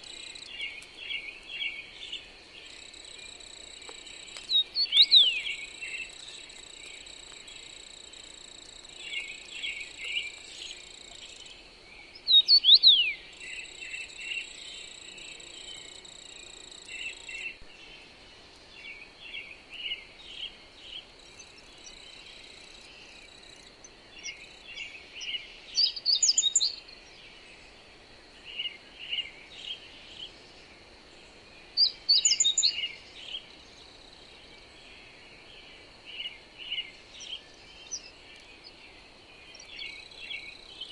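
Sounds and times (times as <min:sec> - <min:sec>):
insect trill: 0:00.0 - 0:17.6, 0:31.8 - 0:34.7
soft wind hiss: 0:00.0 - 0:40.9
songbirds chirping: 0:00.0 - 0:40.9.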